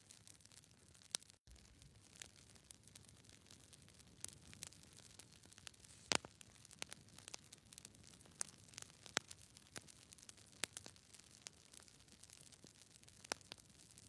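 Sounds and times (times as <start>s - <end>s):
sharp clicks and crackles: 1.1s - 9.9s
faint hiss: 5.7s - 6.4s.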